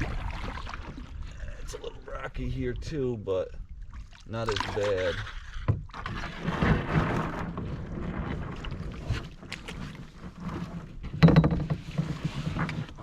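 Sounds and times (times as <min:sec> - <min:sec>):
paddle in water: 0:00.0 - 0:13.0
sharp clatter of knocks: 0:11.0 - 0:12.2.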